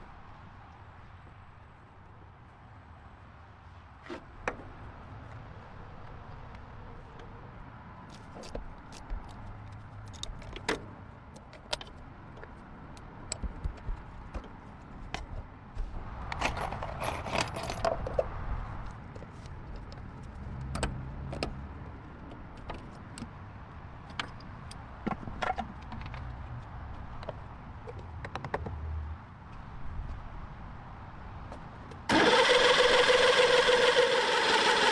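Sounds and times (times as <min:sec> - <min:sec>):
metal parts rattling and scraping: 0:16.4 - 0:18.1.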